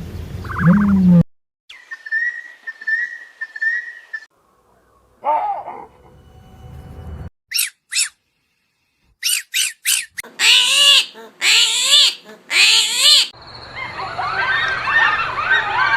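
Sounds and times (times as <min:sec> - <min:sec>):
animal crying loudly: 0:05.2 - 0:05.9, 0:09.2 - 0:13.3, 0:14.1 - 0:15.9
animal squeaking: 0:07.5 - 0:08.2, 0:09.2 - 0:13.3.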